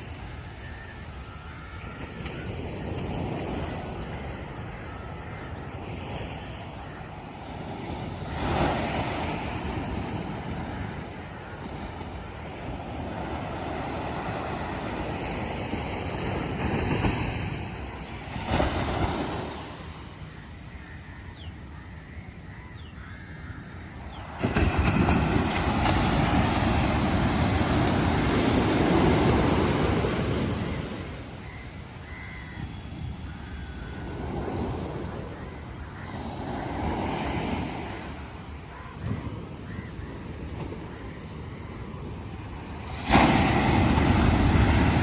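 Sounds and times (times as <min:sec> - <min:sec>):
waves breaking on shore: 0:00.0 - 0:20.8, 0:23.8 - 0:45.0
faint bird calls: 0:17.2 - 0:42.8.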